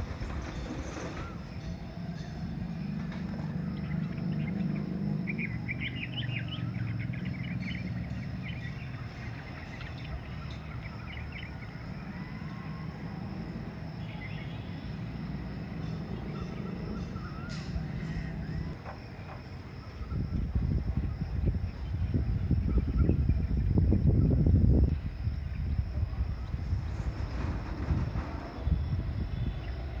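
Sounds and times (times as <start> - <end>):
birds chirping: 2.8 - 12.4.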